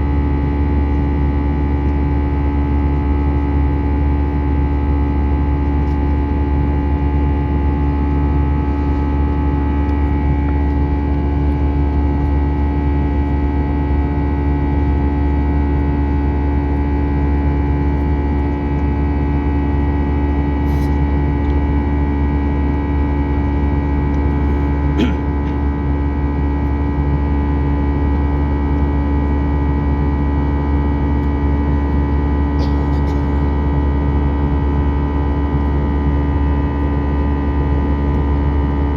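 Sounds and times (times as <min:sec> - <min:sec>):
airplane cabin roar: 0:00.0 - 0:29.8, 0:30.5 - 0:38.9.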